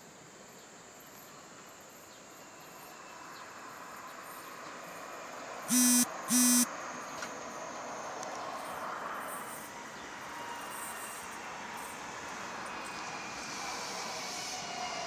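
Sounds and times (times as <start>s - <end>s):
faint high whining tones: 5.7s - 6.7s.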